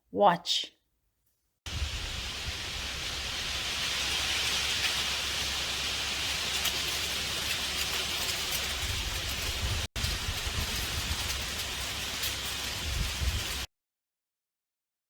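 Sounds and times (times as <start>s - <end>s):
wind rumble on microphone: 1.7s - 3.9s, 8.7s - 13.7s
leaves rustling in breeze: 1.7s - 13.7s
dry seed pods rattling: 3.8s - 13.7s.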